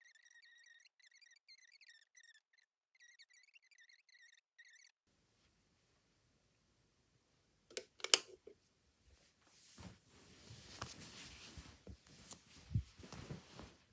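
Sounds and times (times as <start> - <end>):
soft rustling: 9.0 - 13.9.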